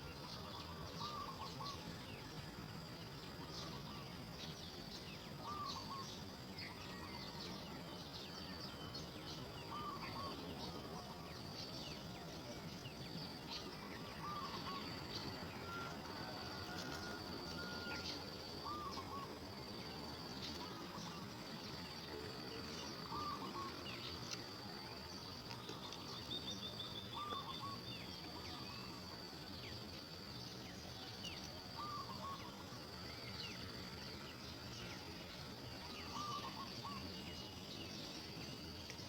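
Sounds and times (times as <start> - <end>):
high insect drone: 0.0 - 39.0
bird calling: 0.2 - 1.8, 9.7 - 10.4, 14.0 - 16.0, 16.6 - 19.4, 23.1 - 24.2, 25.6 - 28.9, 31.8 - 32.6, 35.9 - 37.1.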